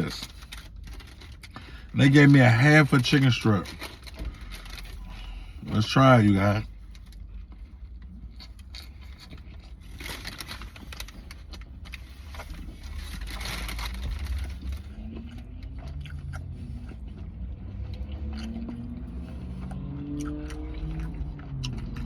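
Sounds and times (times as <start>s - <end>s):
person chewing and crunching: 0.0s - 22.0s
wrapper rustling: 9.8s - 14.8s.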